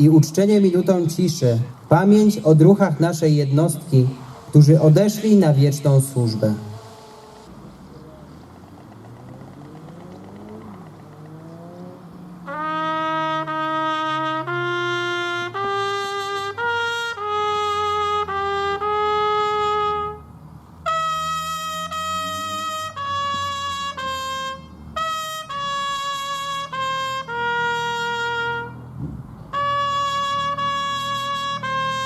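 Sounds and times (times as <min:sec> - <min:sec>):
solo trumpet playing long notes: 0:12.4 - 0:28.8, 0:29.5 - 0:32.0.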